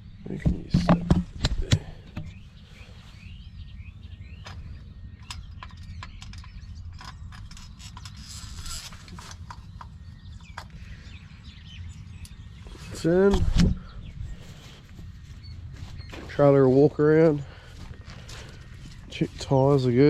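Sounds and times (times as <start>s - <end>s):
birds chirping: 0.0s - 20.0s
metal parts clicking and knocking: 5.2s - 10.8s
steady low rumble: 8.4s - 20.0s.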